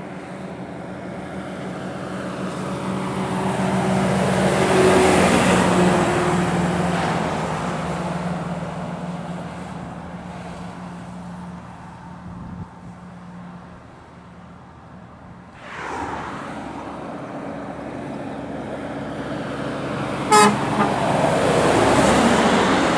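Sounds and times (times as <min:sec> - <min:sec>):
heavy truck engine under load: 0:17.0 - 0:22.9.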